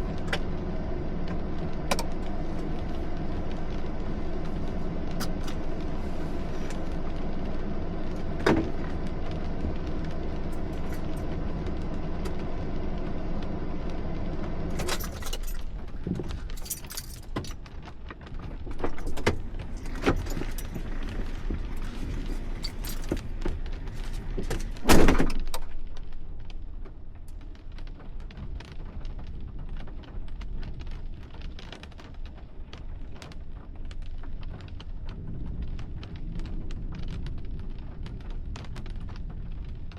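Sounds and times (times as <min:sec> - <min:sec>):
vehicle engine running: 0:00.0 - 0:39.9
clicks and jangles: 0:14.7 - 0:17.6, 0:19.8 - 0:23.3.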